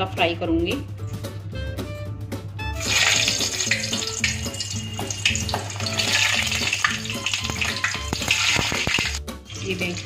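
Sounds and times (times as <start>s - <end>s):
onions sizzling and spitting: 2.8s - 10.0s.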